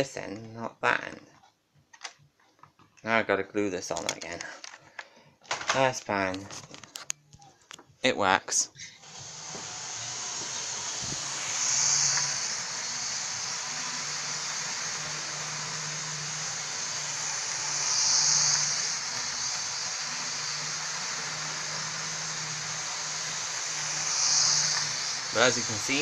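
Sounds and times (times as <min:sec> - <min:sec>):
model train running on track: 0:09.0 - 0:26.0.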